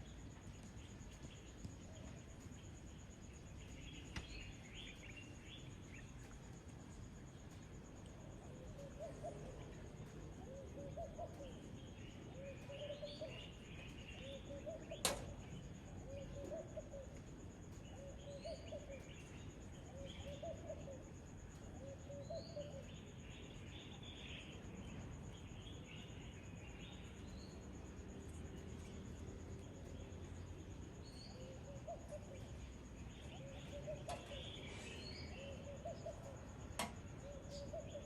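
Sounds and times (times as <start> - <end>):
birds chirping twitters: 0.0 - 7.7, 8.3 - 38.0
faint insect drone: 0.0 - 38.0
sharp click: 15.0 - 15.5, 36.8 - 37.6.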